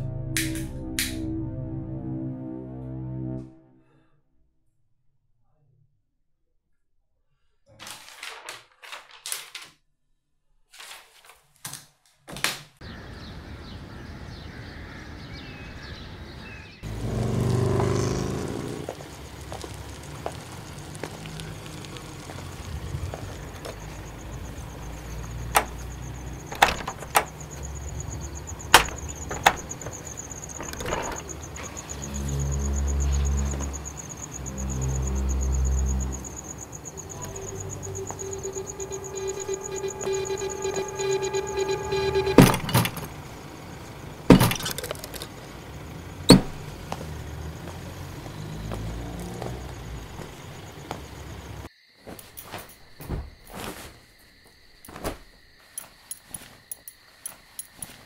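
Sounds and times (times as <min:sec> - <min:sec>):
crickets chirping: 0:12.8 - 0:58.0
sharp knocks and clicks: 0:25.3 - 0:27.7, 0:28.6 - 0:31.7
low drone: 0:27.9 - 0:47.4
low swelling sound: 0:31.9 - 0:43.2.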